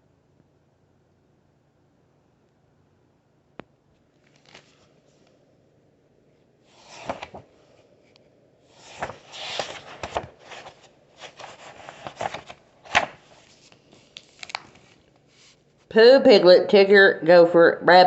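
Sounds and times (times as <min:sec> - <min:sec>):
paper page rustling: 0:04.2 - 0:05.3, 0:06.7 - 0:07.5, 0:08.7 - 0:15.9.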